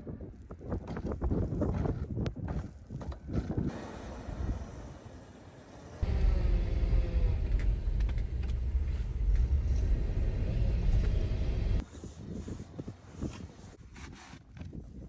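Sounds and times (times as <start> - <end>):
vehicle engine rumbling: 3.7 - 11.8.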